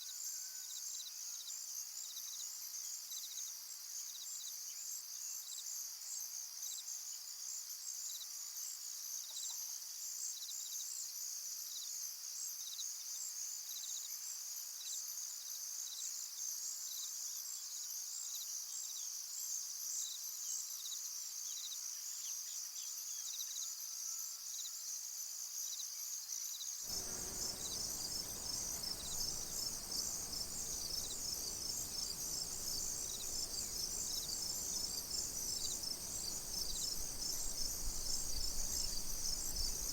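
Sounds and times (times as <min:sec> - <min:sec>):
single cricket chirps: 0:26.8 - 0:39.9
crickets chirping: 0:26.9 - 0:39.9
high insect tone: 0:26.9 - 0:39.9
low background noise: 0:26.9 - 0:39.9.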